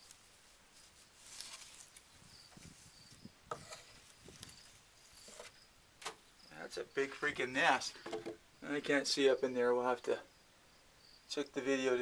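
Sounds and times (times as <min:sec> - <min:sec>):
faint cricket chirps: 0:00.0 - 0:12.0
soft rustles and knocks: 0:00.8 - 0:06.2, 0:07.9 - 0:08.4.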